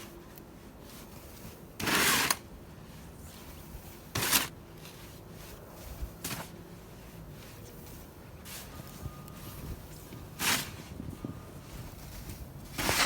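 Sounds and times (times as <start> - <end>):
snow shovel scooping snow: 1.0 - 2.4, 4.1 - 6.6, 10.4 - 11.0, 12.0 - 13.0.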